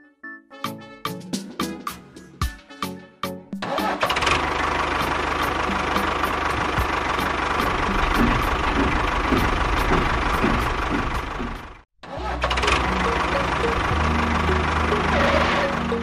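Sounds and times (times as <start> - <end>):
tractor engine running: 3.6 - 16.0.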